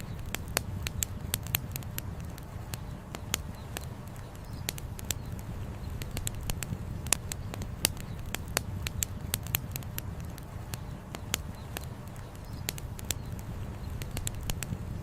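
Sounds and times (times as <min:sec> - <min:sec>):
campfire wood crackling and popping: 0:00.0 - 0:15.0.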